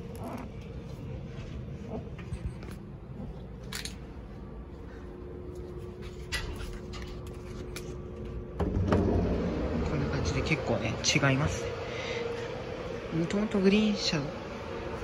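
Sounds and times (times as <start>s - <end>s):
faint steady hum: 0.0s - 15.0s
train rumbling from inside: 8.6s - 15.0s.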